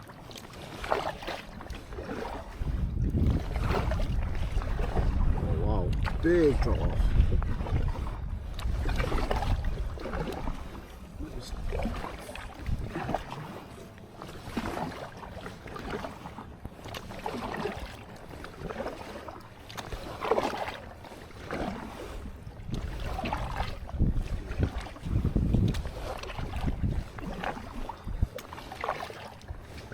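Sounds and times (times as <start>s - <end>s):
water splashing against kayak: 0.0s - 29.9s
wind rumbling on microphone: 1.2s - 13.6s, 21.5s - 28.5s.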